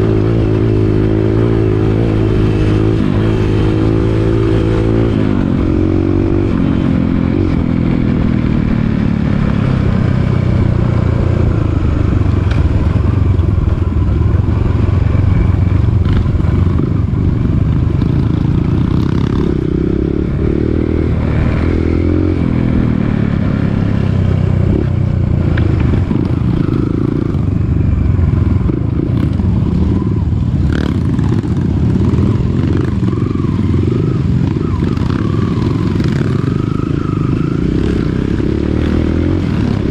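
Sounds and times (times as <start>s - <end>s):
dirt bike engine revving: 0.0s - 7.6s, 28.3s - 39.9s.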